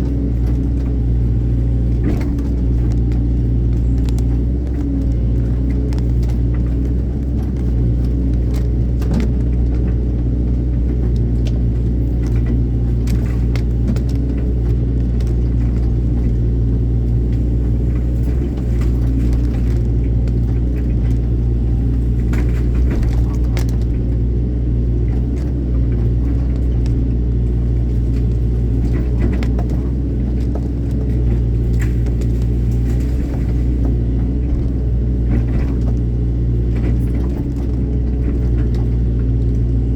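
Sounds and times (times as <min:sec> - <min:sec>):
excavator diesel engine rumbling: 0:00.0 - 0:39.9
sharp clicks and knocks: 0:01.9 - 0:24.2.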